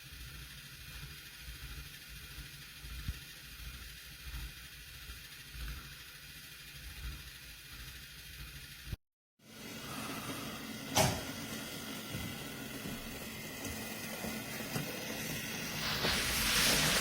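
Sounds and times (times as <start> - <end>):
toy train motor running: 0.0 - 9.0, 11.5 - 17.0
hiss: 15.2 - 17.0.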